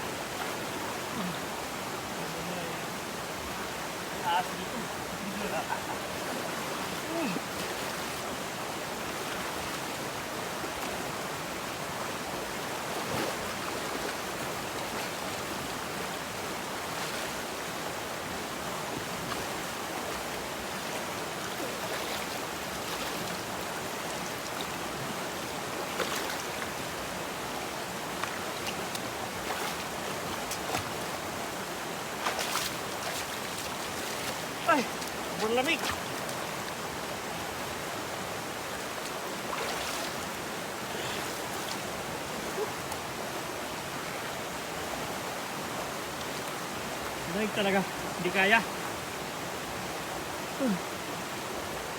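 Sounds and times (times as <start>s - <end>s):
river water rushing: 0.0s - 51.9s
faint knocks or splashes: 12.9s - 14.2s, 25.9s - 26.5s, 28.2s - 31.2s, 32.2s - 36.4s, 39.5s - 40.2s.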